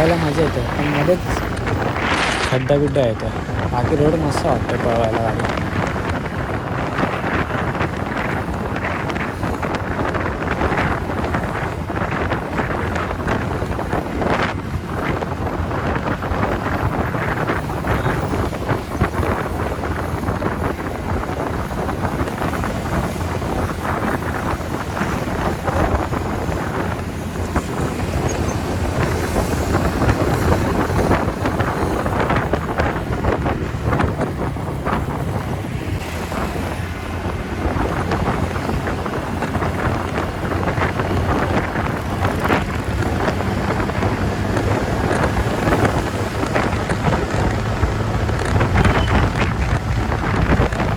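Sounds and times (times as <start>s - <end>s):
wind rushing over microphone: 0.0s - 50.9s
scooter engine running: 3.2s - 50.9s.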